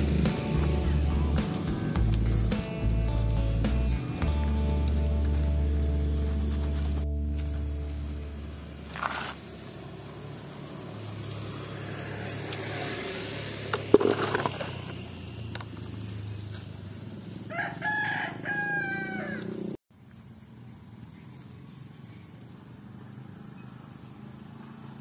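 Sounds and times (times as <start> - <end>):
low hum: 0.0 - 10.6
rooster crowing: 17.5 - 19.6.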